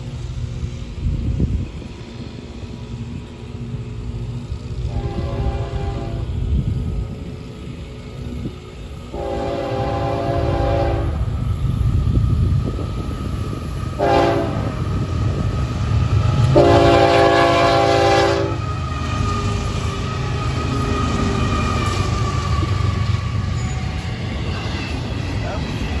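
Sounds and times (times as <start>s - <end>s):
diesel locomotives rumbling: 0.0s - 26.0s
train air horn blasts: 4.8s - 6.4s, 9.1s - 11.3s, 14.0s - 14.9s, 16.4s - 18.6s.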